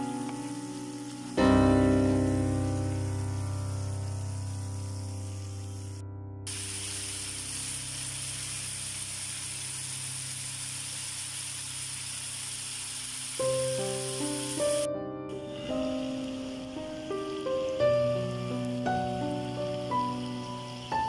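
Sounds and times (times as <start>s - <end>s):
music notes: 0.0s - 6.0s
held piano chord: 0.0s - 6.5s, 13.4s - 21.0s
chicken sizzling in hot oil: 0.0s - 21.0s.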